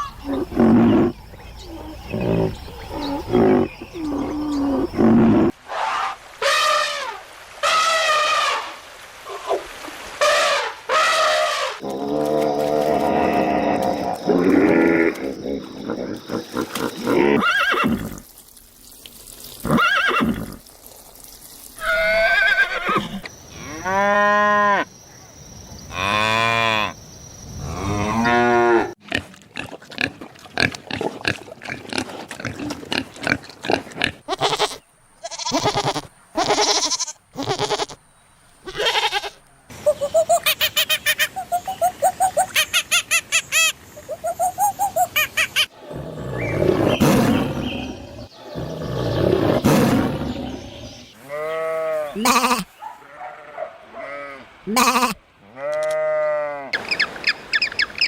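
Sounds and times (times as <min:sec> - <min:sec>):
farm animal calls: 0:38.6 - 0:57.0.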